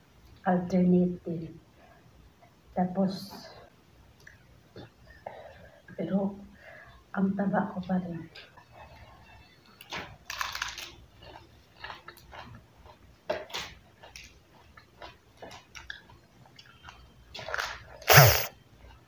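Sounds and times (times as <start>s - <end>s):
crunching lettuce: 10.3s - 16.2s
loud crunch with thump: 18.1s - 18.5s.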